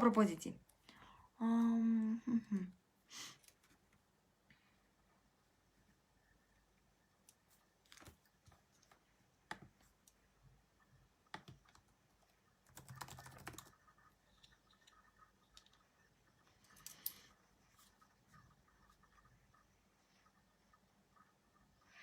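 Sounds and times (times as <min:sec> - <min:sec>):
faint clicks and taps: 0:05.7 - 0:21.7.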